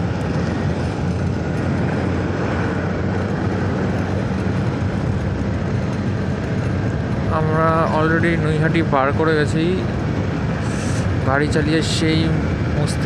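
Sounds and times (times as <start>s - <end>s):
road noise: 0.0s - 13.0s
scooter engine hum: 0.0s - 13.0s
wind rush on microphone: 0.0s - 13.0s.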